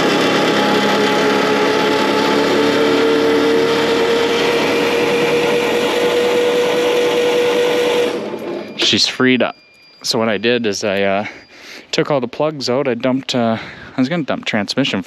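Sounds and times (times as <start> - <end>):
electric starter spinning engine: 0.0 - 9.1.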